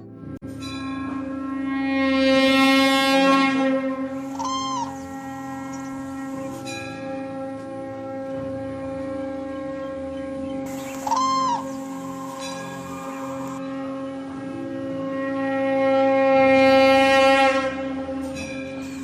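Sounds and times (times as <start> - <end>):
droning wind instrument tone: 0.5 - 19.0
short arching call: 4.1 - 6.7, 10.7 - 13.6.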